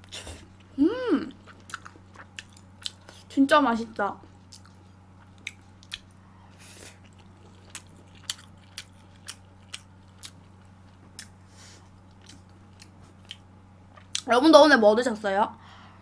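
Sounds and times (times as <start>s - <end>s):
faint steady hum: 0.0s - 16.0s
person chewing with wet mouth clicks: 4.5s - 6.1s, 7.0s - 10.4s.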